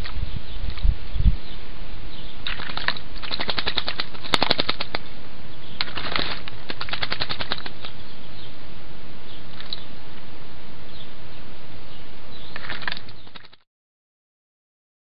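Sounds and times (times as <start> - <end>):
steady background hiss: 0.0 - 3.2, 4.0 - 6.9, 7.5 - 13.2
bird splashing in water: 2.4 - 5.1, 5.8 - 8.0, 12.5 - 13.6.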